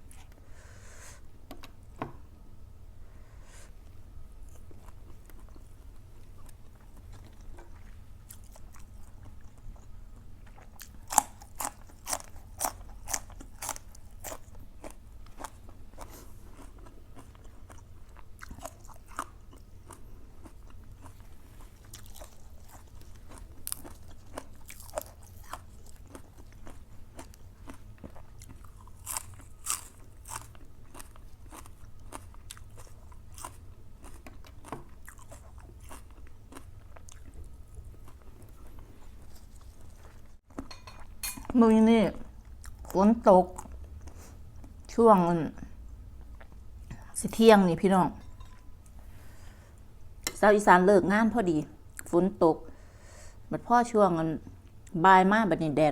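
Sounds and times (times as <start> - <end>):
low steady hum: 0.0 - 55.9
person chewing crunchy food: 4.4 - 41.5.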